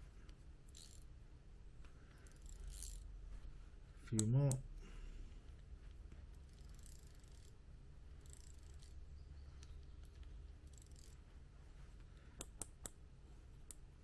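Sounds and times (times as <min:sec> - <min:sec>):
fly reel spool rasping: 0:00.7 - 0:01.0, 0:02.2 - 0:03.0, 0:06.5 - 0:07.5, 0:08.2 - 0:08.9, 0:10.7 - 0:11.2.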